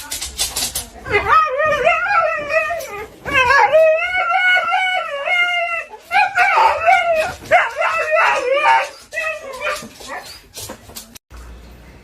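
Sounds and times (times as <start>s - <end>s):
dog howling: 1.2s - 10.3s.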